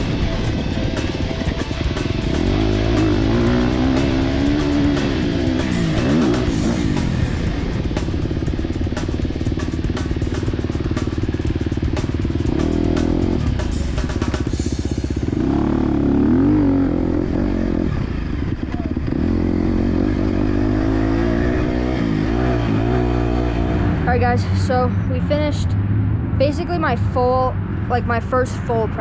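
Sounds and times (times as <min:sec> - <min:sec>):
music: 0:00.0 - 0:15.7
motocross engine revving: 0:00.0 - 0:25.6.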